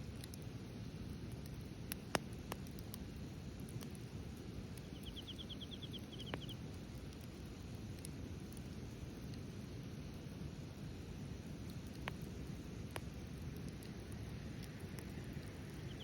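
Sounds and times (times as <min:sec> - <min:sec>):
low steady background noise: 0:00.0 - 0:16.0
wood fire crackling and popping: 0:00.0 - 0:16.0
bird trilling: 0:04.9 - 0:06.6.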